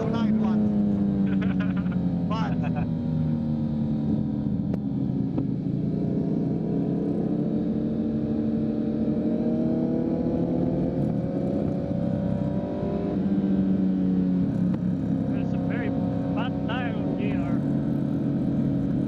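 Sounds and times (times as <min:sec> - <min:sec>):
motorcycle engine while riding: 0:00.0 - 0:19.0.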